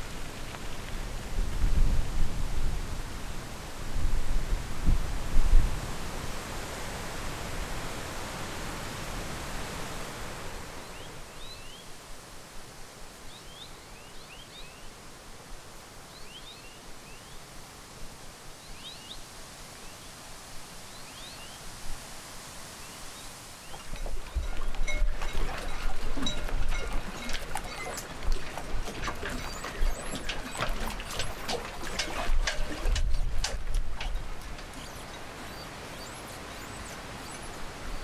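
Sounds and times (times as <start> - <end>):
wind rumble on microphone: 0.0 - 11.6, 23.7 - 38.0
wind rushing through trees: 0.0 - 38.0
small bird chirping: 34.3 - 38.0.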